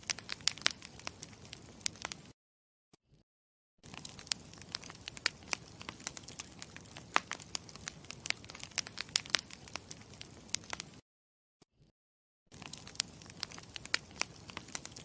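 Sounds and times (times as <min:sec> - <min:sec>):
campfire crackling: 0:00.0 - 0:02.3, 0:03.8 - 0:11.0, 0:12.5 - 0:15.0.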